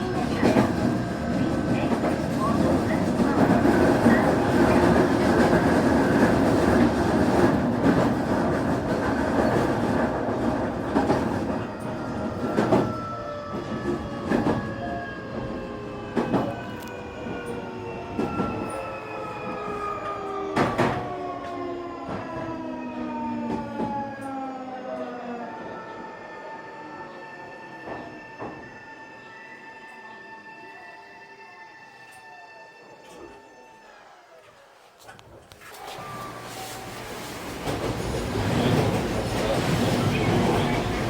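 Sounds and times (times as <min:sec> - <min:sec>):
electric train running: 0:35.9 - 0:41.0
rail joint clacks: 0:36.7 - 0:41.0.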